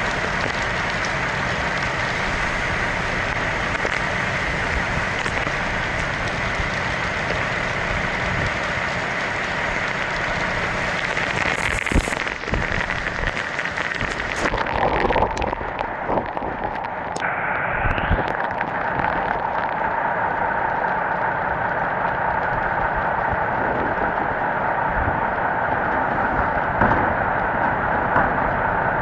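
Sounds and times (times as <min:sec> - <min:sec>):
wind and rain hiss: 0:00.0 - 0:29.0.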